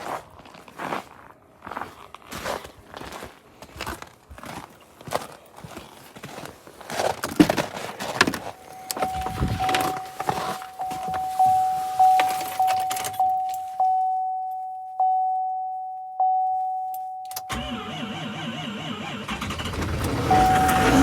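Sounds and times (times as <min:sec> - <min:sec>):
diesel engine starter cranking: 0:08.2 - 0:11.2, 0:17.4 - 0:21.0
dashboard warning chime dinging: 0:08.2 - 0:17.9, 0:20.1 - 0:21.0.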